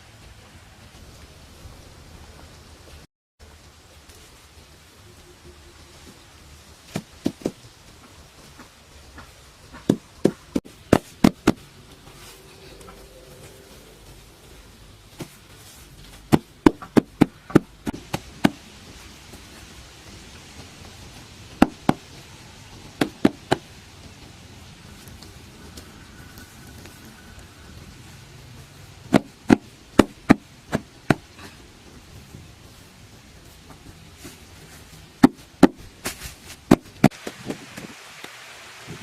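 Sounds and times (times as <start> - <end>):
faint steady hiss: 0.0 - 39.0.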